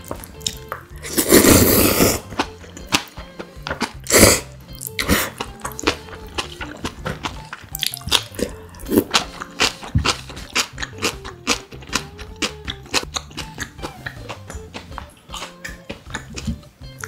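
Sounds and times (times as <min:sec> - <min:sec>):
crisp crunches and wet chewing: 0:04.8 - 0:17.0.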